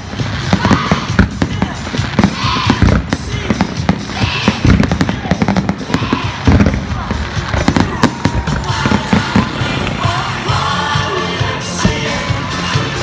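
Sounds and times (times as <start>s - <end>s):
deep firework booms: 0.0s - 10.2s
firework crackling: 0.0s - 13.0s
music playing: 0.0s - 13.0s.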